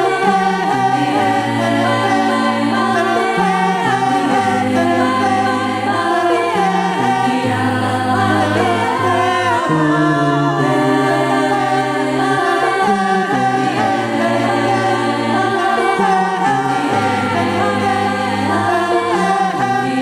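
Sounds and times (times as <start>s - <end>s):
a cappella group singing: 0.0s - 20.0s
lead voice gliding: 0.0s - 20.0s
sung bass line: 0.0s - 20.0s.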